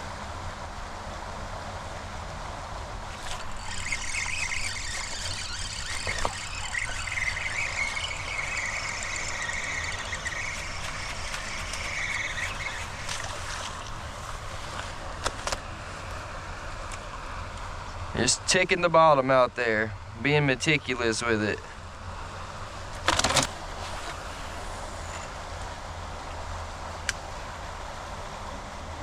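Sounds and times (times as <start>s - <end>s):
floodwater rushing: 3.0s - 15.9s
high wavering squeal: 3.1s - 14.6s.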